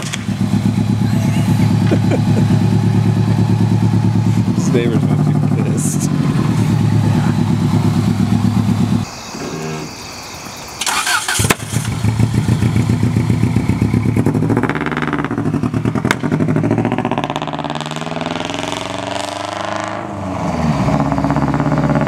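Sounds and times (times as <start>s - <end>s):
car engine idling: 0.0s - 9.1s, 10.9s - 17.7s.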